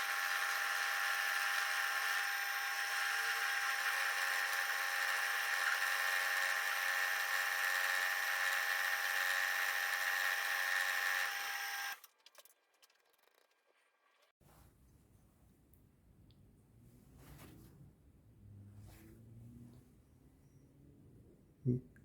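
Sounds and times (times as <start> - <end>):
milling spindle high-pitched whine: 0.0 - 12.0.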